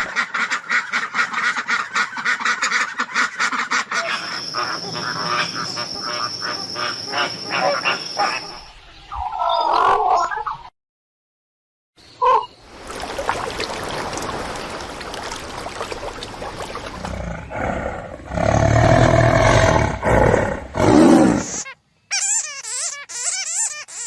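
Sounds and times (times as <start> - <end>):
big cat roaring: 17.0 - 21.6.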